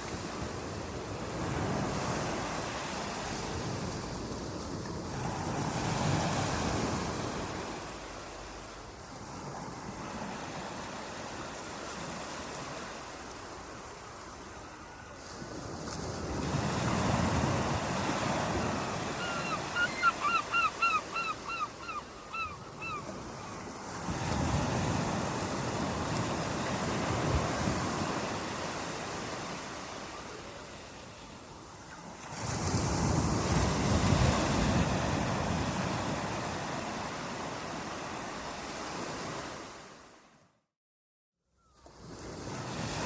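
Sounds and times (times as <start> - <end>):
bird calling sharp notes: 19.1 - 23.1.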